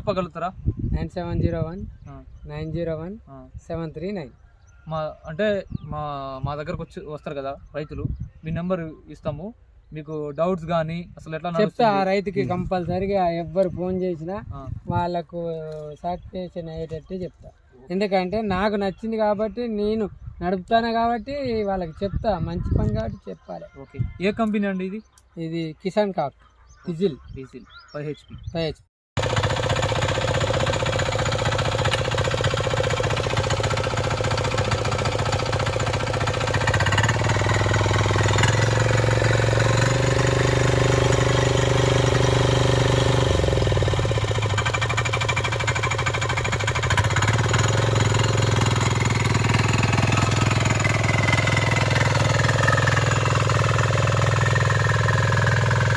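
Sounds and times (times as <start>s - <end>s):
diesel engine knocking clatter: 29.2s - 55.9s.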